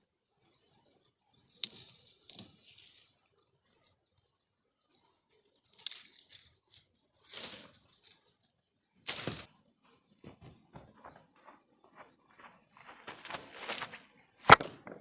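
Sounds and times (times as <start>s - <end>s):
dry leaves and twigs rustling: 1.3s - 4.0s, 5.0s - 9.6s, 12.8s - 14.9s
sharp twig crack: 9.1s - 9.5s.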